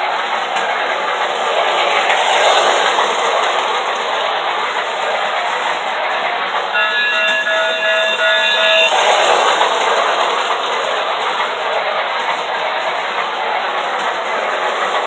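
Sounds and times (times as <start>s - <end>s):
toy train whirring on track: 0.0s - 15.0s
pulsing chord-like train whistle: 6.6s - 10.2s.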